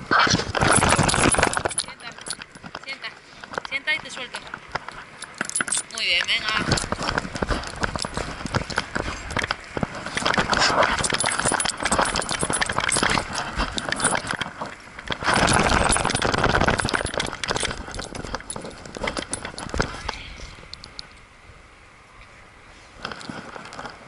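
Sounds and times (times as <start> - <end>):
rustling: 0.1 - 21.1
metal jingling and clinking: 0.6 - 20.0.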